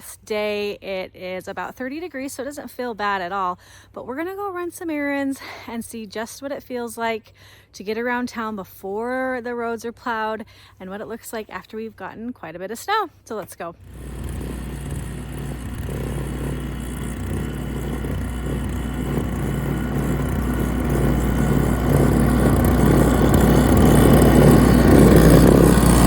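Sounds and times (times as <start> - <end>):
car engine hum: 13.8 - 26.0
tyres on slushy road: 13.8 - 26.0.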